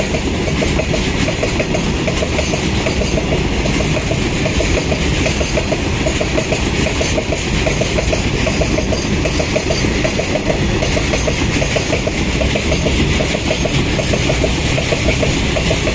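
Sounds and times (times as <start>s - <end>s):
train rumbling past: 0.0s - 15.9s.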